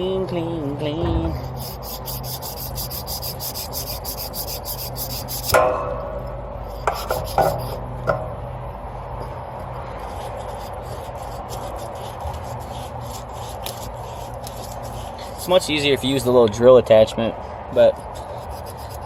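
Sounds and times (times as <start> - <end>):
abrasive rubbing copper pipe: 1.0 - 6.0, 6.6 - 8.2, 10.0 - 16.3
metallic knocks with ring: 7.0 - 8.4.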